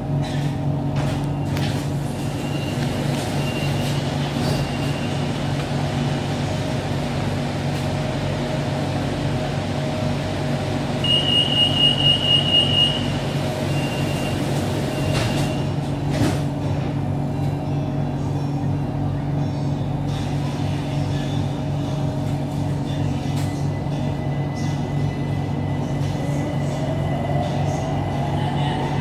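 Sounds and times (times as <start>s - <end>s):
train equipment humming: 0.0s - 29.0s.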